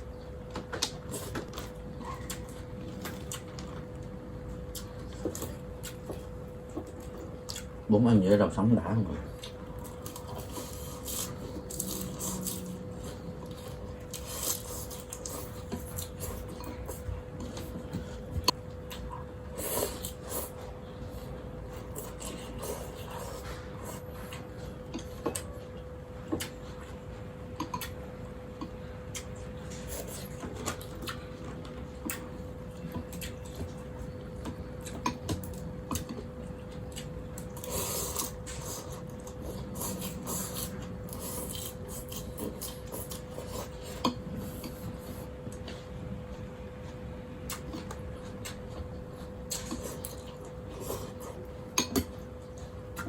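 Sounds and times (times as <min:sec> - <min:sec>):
steady hum: 0:00.0 - 0:53.0.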